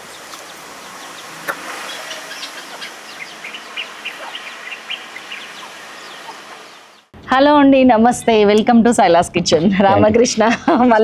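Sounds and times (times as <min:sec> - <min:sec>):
small birds chirping: 0:00.0 - 0:07.1
steady background hiss: 0:00.0 - 0:07.1.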